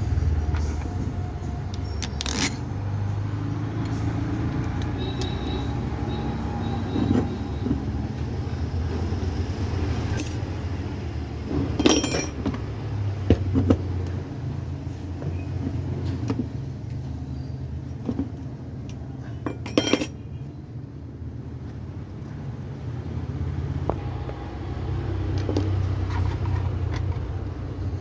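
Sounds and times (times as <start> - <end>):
metal tools clinking: 1.8 - 2.8, 10.0 - 10.6, 11.6 - 12.6, 19.2 - 20.3.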